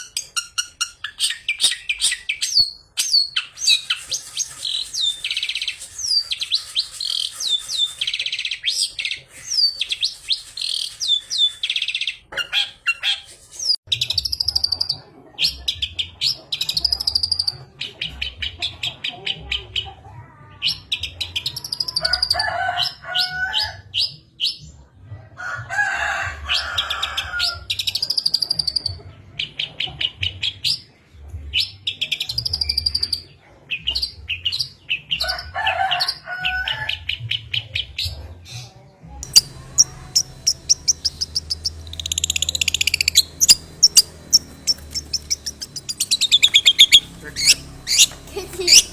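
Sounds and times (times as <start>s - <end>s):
shrike singing chattering notes: 3.6s - 12.1s, 39.2s - 48.9s.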